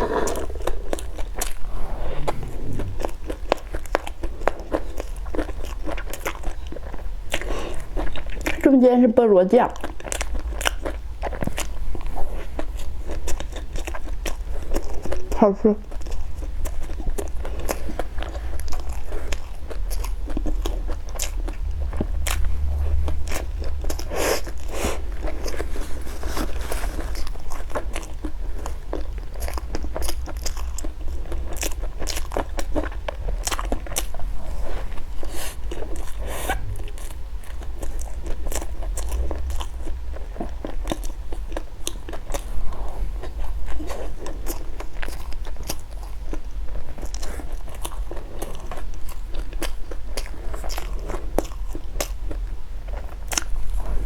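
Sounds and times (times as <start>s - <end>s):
person chewing and crunching: 0.0s - 8.7s, 9.6s - 54.0s.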